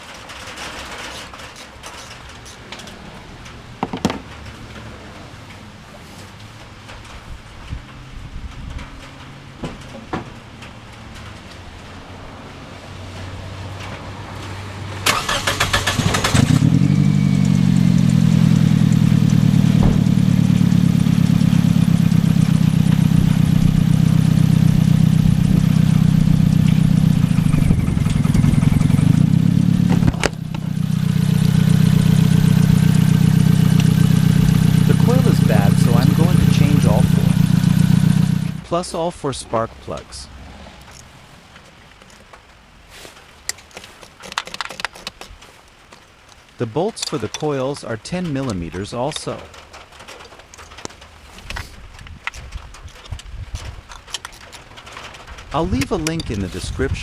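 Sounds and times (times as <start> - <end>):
car engine starting and idling: 14.6 - 41.2.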